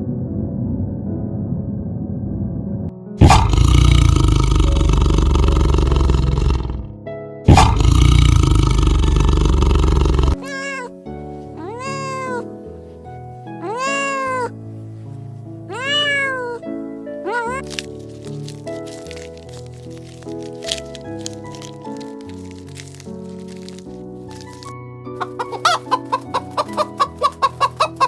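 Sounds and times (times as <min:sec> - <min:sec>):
background music: 0:02.9 - 0:28.0
loud rough roars: 0:03.2 - 0:06.9, 0:07.5 - 0:10.4
cat meowing: 0:08.9 - 0:11.0, 0:11.6 - 0:12.5, 0:13.6 - 0:14.6, 0:15.7 - 0:18.0, 0:25.2 - 0:28.0.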